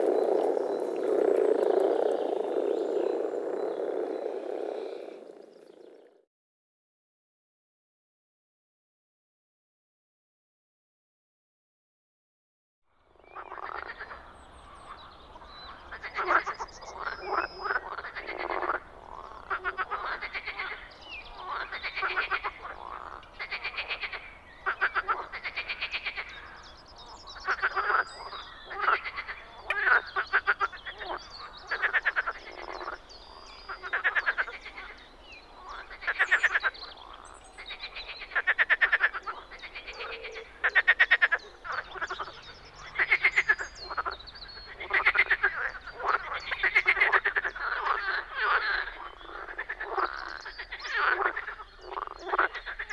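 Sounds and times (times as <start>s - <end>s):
frogs croaking in chorus: 0.0s - 6.2s, 13.1s - 52.9s.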